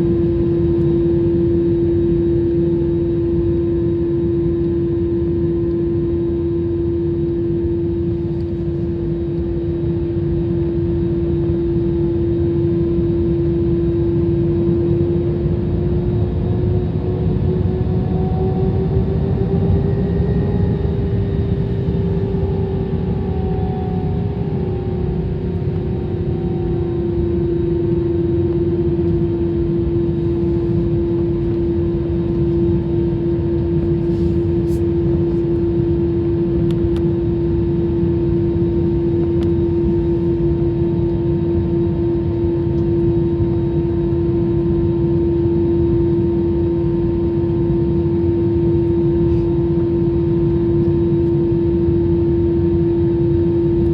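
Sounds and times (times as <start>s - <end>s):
jet engine cabin rumble: 0.0s - 53.9s
strong humming tone: 14.0s - 37.6s.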